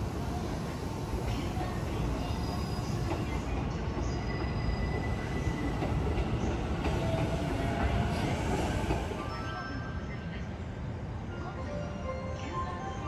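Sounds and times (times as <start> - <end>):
train wheels rumbling on rails: 0.0 - 9.2.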